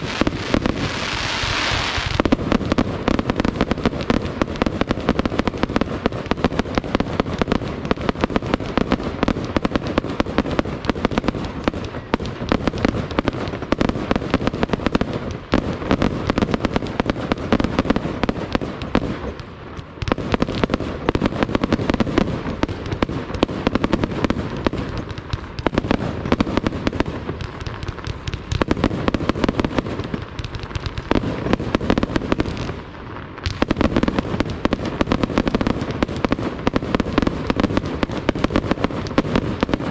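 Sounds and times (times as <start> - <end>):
fireworks bangs and cracks: 0.0 - 39.9.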